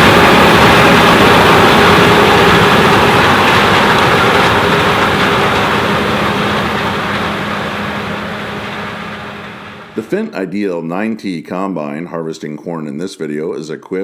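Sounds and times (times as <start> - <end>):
combine harvester engine drone: 0.0 - 10.1.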